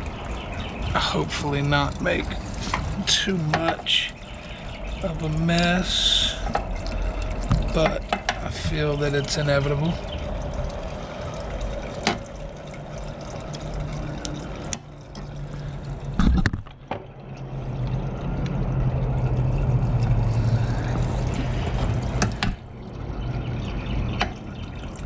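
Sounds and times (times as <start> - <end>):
low hum: 0.0 - 25.0
oil trickling into a pan: 0.0 - 25.0
parts clicking and knocking: 6.4 - 8.5.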